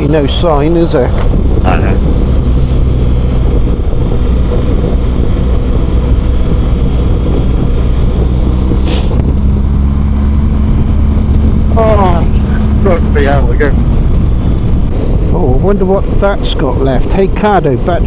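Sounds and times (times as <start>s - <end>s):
motorcycle engine cruising: 0.0s - 18.0s
road and wind noise: 0.0s - 18.0s
brief hiss: 8.8s - 9.2s.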